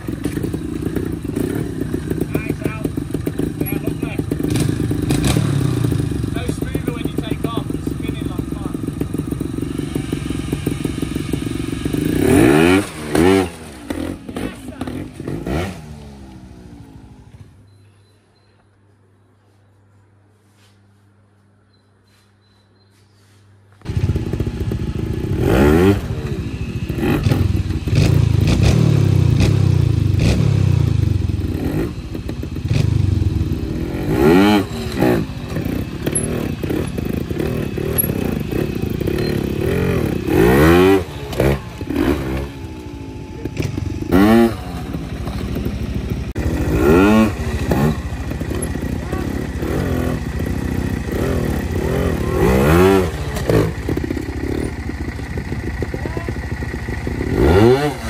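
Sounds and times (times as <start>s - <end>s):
motorcycle engine throttle blips: 0.0s - 18.8s, 23.8s - 58.0s.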